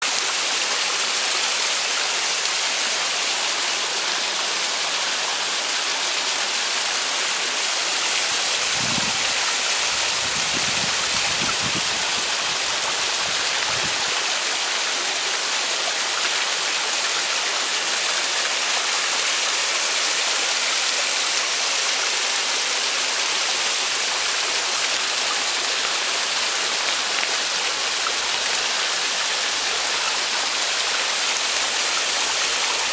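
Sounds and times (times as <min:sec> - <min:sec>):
waterfall splashing: 0:00.0 - 0:32.9.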